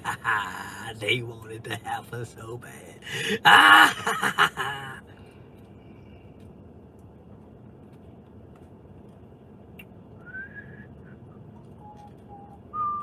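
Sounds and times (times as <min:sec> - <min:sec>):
low background hiss: 0:00.0 - 0:13.0
whistled notes: 0:10.2 - 0:13.0.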